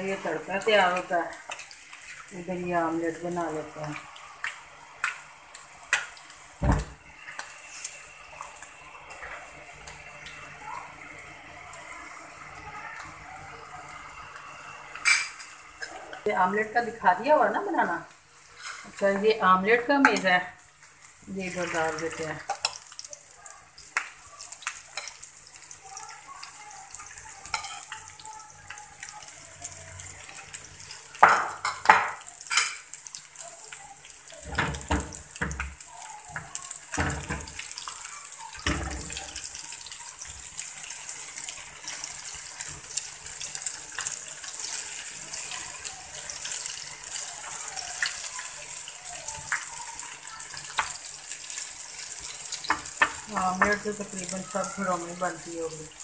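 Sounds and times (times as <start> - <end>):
oil frying in a small pan: 0.0 - 56.0
omelette sizzling on a griddle: 0.0 - 56.0
utensils knocking on pans: 36.4 - 37.6.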